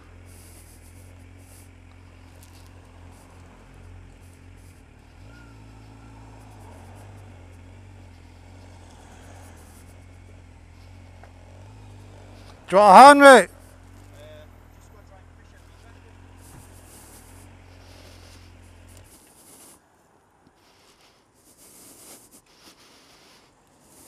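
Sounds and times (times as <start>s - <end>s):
motorcycle engine running: 0.0s - 12.7s, 13.5s - 19.3s.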